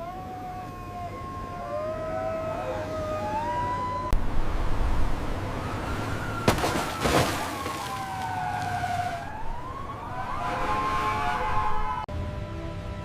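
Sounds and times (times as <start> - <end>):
emergency siren wailing: 0.0 - 4.2, 5.5 - 13.0.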